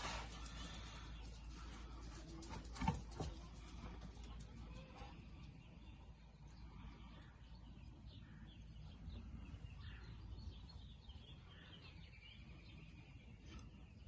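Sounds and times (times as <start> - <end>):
faint birds chirping: 0.0 - 14.0.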